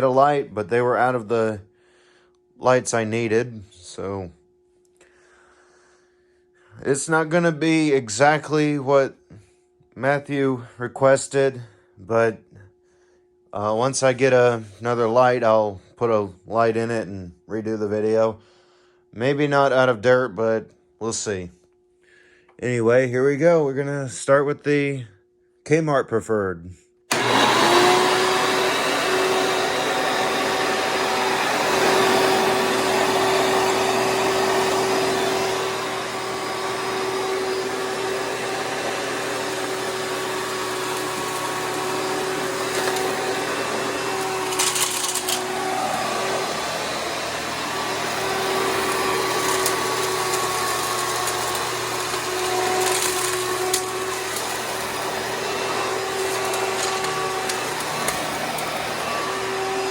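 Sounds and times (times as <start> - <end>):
upright vacuum cleaner running: 0.0 - 1.6, 27.1 - 59.9.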